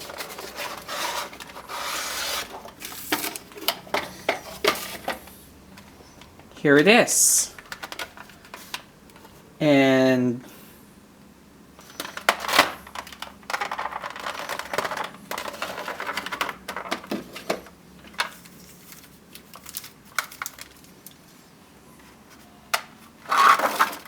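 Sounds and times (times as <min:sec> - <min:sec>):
packaging rustling: 0:00.0 - 0:06.5, 0:11.8 - 0:21.4, 0:22.4 - 0:24.0.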